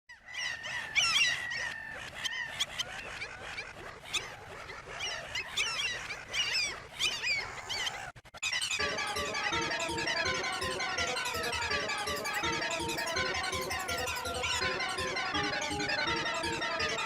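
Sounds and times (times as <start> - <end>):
gulls calling: 0.2 - 17.0
steady high tone: 8.8 - 17.0.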